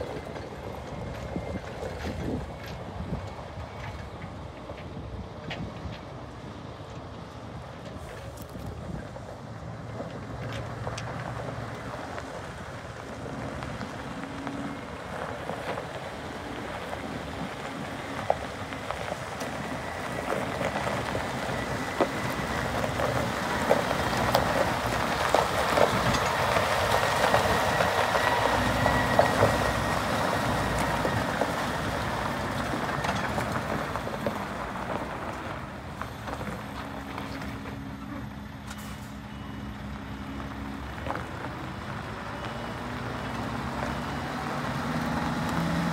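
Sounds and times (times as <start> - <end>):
truck engine running: 0.0 - 45.9
rattles and clicks: 17.4 - 34.5.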